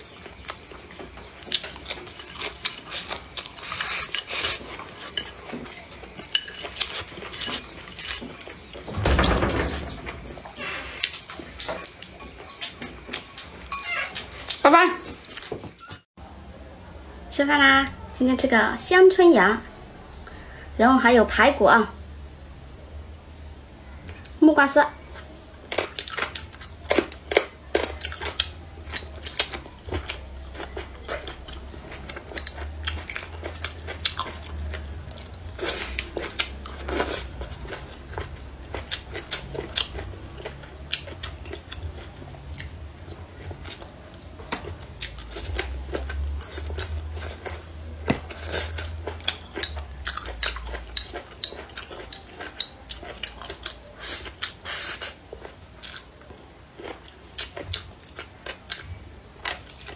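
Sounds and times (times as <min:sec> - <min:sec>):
crunchy chewing: 0:00.0 - 0:08.9, 0:25.1 - 0:59.9.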